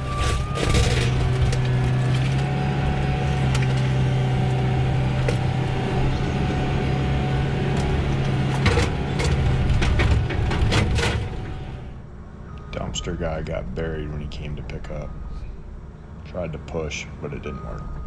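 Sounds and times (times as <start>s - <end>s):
demolition debris knocks and cracks: 0.0s - 2.6s, 7.7s - 11.7s
excavator diesel engine running: 0.0s - 18.0s.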